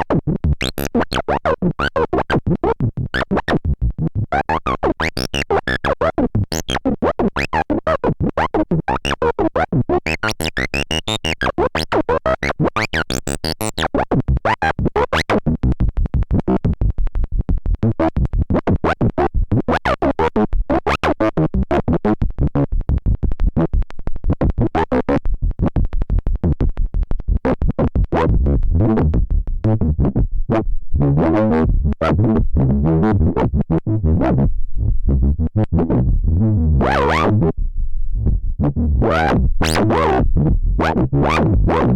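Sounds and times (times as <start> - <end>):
heavy synth bass: 28.0 - 41.9.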